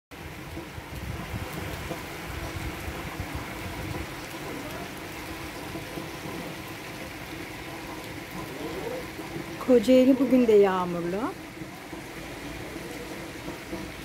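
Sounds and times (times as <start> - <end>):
rain falling on pavement: 0.1 - 14.0
low uneven rumble: 0.2 - 14.0.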